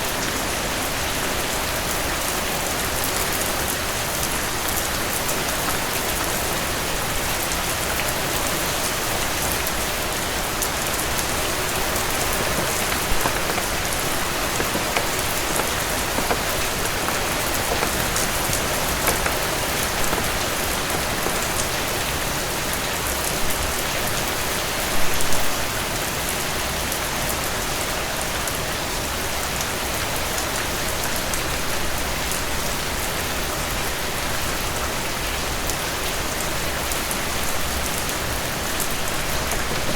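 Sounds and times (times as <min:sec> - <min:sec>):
heavy rain falling: 0:00.1 - 0:23.6, 0:37.9 - 0:39.9.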